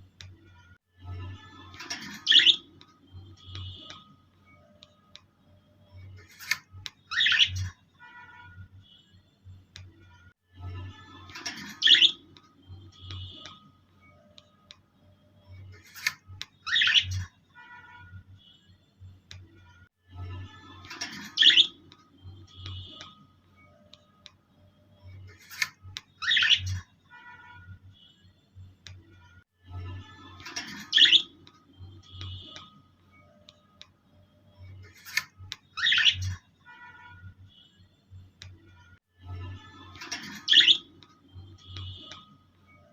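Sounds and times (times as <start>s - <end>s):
pet birds chirping: 2.0s - 2.9s, 7.0s - 7.8s, 11.7s - 12.3s, 16.6s - 17.3s, 21.1s - 21.8s, 26.2s - 26.8s, 30.6s - 32.7s, 35.0s - 36.4s, 40.1s - 42.2s
loud sharp bird squawk: 26.2s - 26.8s, 35.8s - 36.4s, 40.4s - 40.9s.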